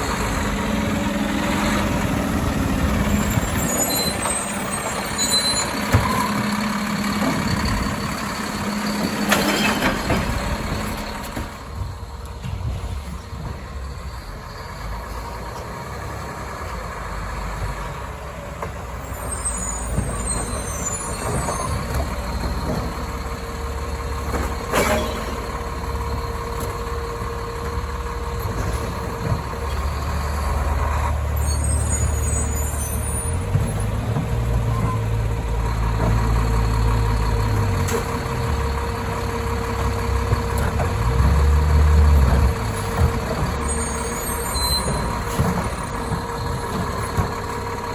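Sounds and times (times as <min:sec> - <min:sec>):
diesel engine revving: 0:00.0 - 0:18.4, 0:19.1 - 0:47.9
sharp clunk: 0:24.4 - 0:25.4.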